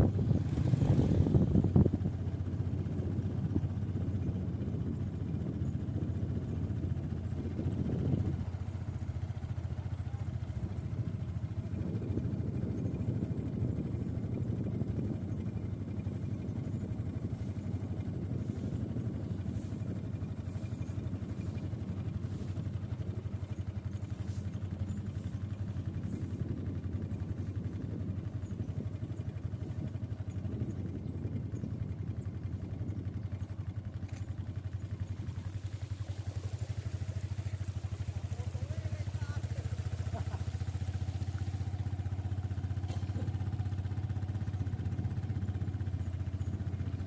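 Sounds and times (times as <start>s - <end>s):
small engine running: 0.0s - 47.0s
faint light clicks: 34.0s - 34.4s.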